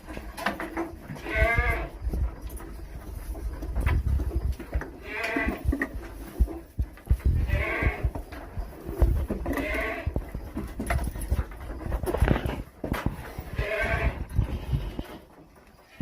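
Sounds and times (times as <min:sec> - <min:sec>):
goat bleating: 0:01.2 - 0:02.0, 0:05.0 - 0:05.8, 0:07.4 - 0:08.1, 0:09.4 - 0:10.2, 0:13.5 - 0:15.3.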